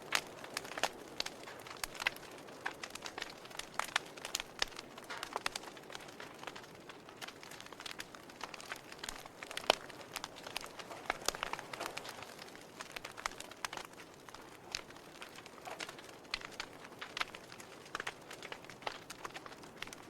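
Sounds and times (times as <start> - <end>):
campfire crackling: 0.0 - 20.0
soft fire hiss: 0.0 - 20.0.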